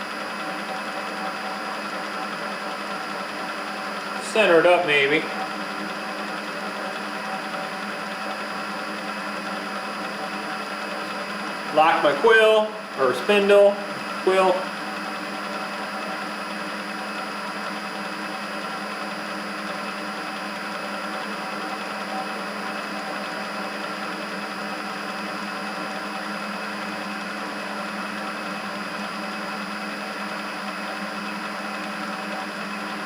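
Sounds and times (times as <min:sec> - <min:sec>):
milling machine motor humming: 0:00.0 - 0:33.0.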